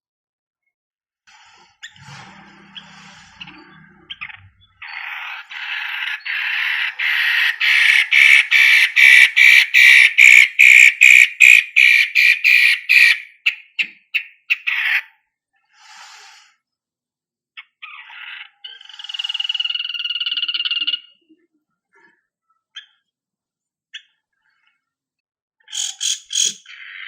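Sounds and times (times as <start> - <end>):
bird harsh chatter: 1.8 - 15.2, 17.6 - 21.2, 25.6 - 27.0.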